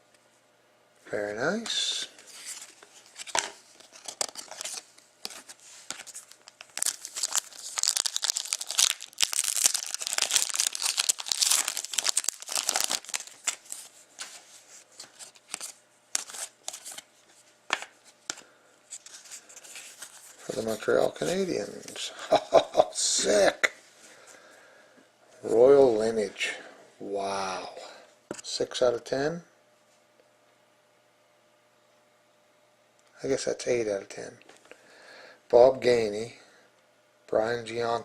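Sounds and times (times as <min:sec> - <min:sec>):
wrapper tearing and crinkling: 0:02.4 - 0:13.9, 0:15.2 - 0:17.0.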